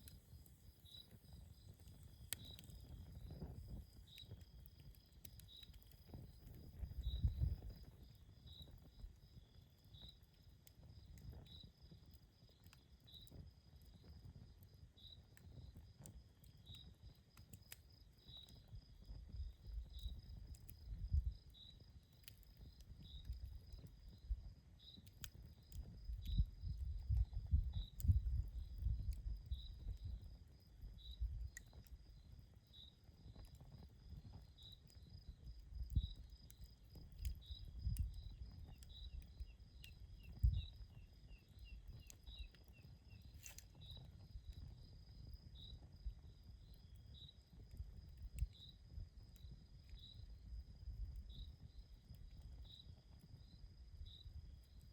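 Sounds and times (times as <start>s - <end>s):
campfire crackling and popping: 0.0s - 53.4s
crickets chirping: 0.6s - 10.2s, 25.5s - 33.3s, 34.0s - 47.8s, 48.5s - 54.8s.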